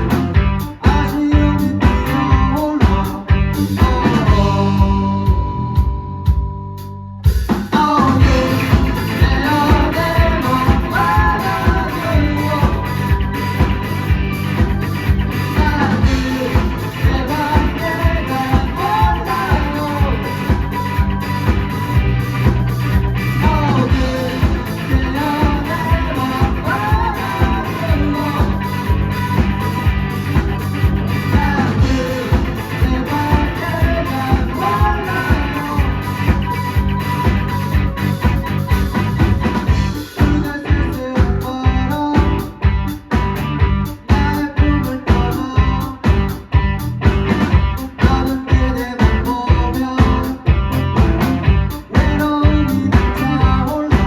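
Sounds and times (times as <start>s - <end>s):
live rock band: 0.0s - 54.0s
person singing: 0.7s - 5.9s, 7.7s - 14.6s, 15.4s - 22.2s, 23.2s - 30.0s, 31.1s - 42.6s, 51.8s - 54.0s.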